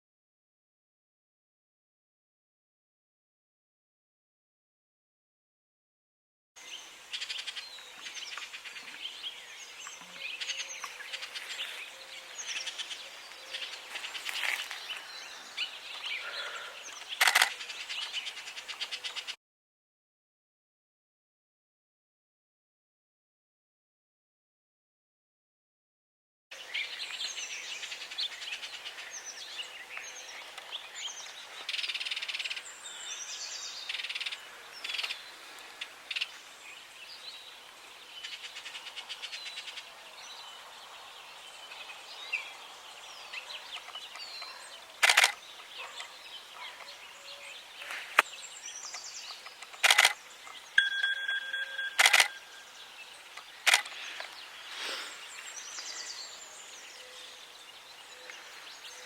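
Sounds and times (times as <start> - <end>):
small birds chirping: 6.6 - 19.4, 26.5 - 59.0
sharp clicks: 16.9 - 17.6, 45.0 - 45.4, 48.9 - 52.4, 53.4 - 54.4
steady beep: 50.8 - 52.8.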